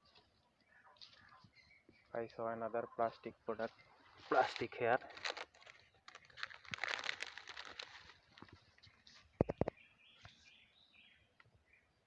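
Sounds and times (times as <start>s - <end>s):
plastic crinkling and rustling: 4.2s - 9.6s.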